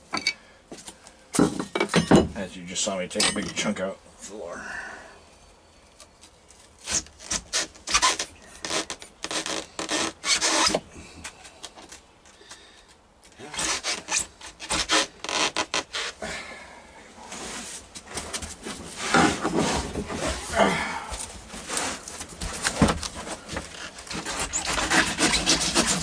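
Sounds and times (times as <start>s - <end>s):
hand tool scraping a floor: 17.2s - 20.6s, 21.5s - 26.0s.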